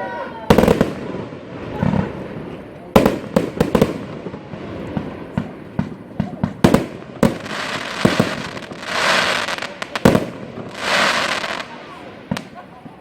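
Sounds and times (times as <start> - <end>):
crackling hiss of fireworks: 0.3 - 13.0
fireworks bangs and pops: 0.5 - 13.0.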